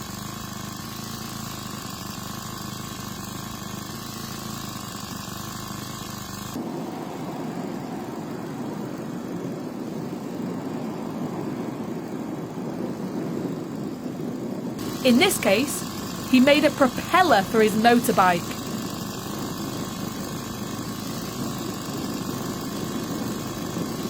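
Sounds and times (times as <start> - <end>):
motorbike engine running: 0.0 - 10.7, 14.8 - 24.0.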